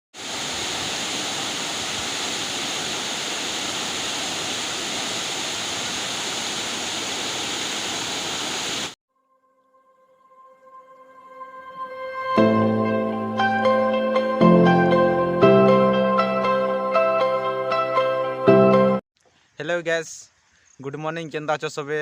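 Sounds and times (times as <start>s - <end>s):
waterfall rushing: 0.2s - 9.0s
soft music: 9.1s - 19.0s.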